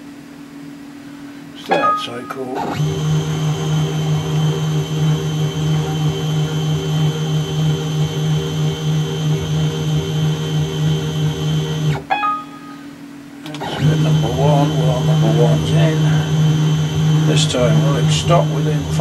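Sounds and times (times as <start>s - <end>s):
milling machine motor whine: 2.6s - 12.0s, 13.4s - 19.0s.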